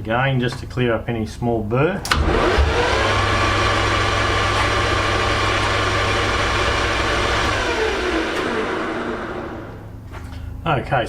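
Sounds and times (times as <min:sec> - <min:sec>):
metal lathe motor whine: 0:02.1 - 0:09.9.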